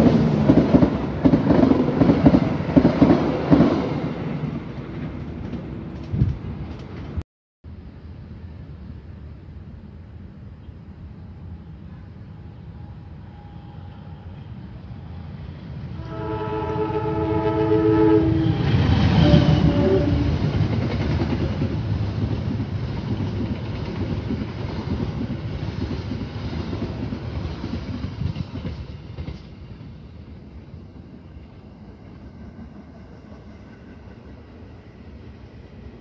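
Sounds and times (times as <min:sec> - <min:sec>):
train wheels rumbling and clacking: 0:00.0 - 0:07.2, 0:18.4 - 0:36.0
train horn: 0:11.8 - 0:15.3, 0:16.0 - 0:20.5.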